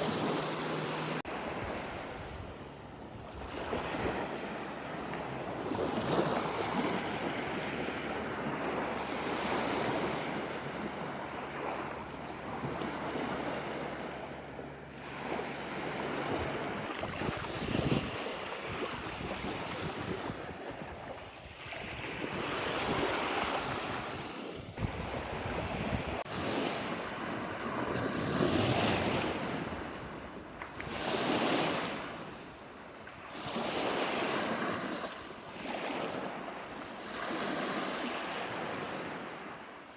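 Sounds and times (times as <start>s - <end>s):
wind buffeting microphone: 15.8s - 26.3s.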